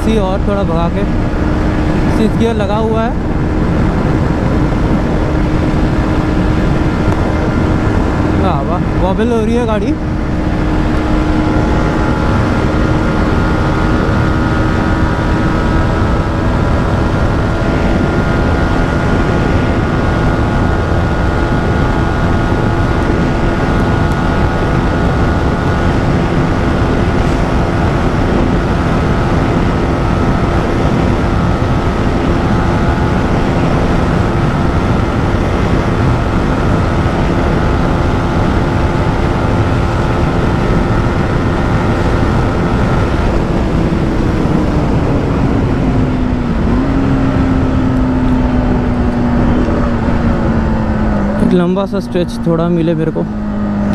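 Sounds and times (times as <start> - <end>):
motorcycle engine at high revs: 0.0 - 53.9
wind rumble: 0.0 - 53.9.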